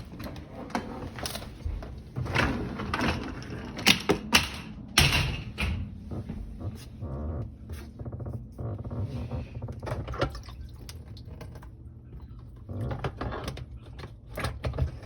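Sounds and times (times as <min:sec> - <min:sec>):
dishwasher racks rattling: 0:00.1 - 0:06.1.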